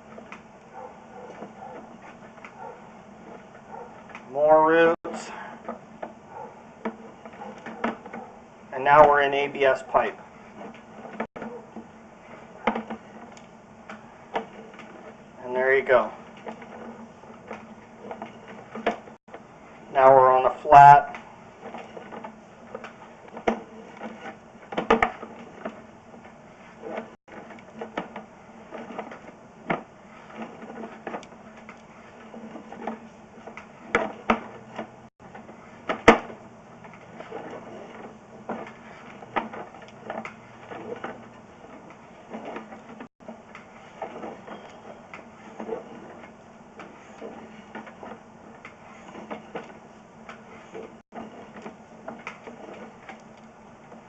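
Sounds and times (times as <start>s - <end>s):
cable clicking and rattling in pipe: 12.2s - 54.0s.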